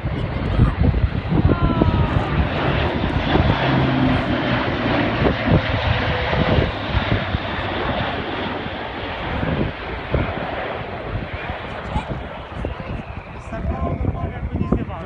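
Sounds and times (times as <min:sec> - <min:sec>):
turboprop engines roaring: 0:00.0 - 0:15.0.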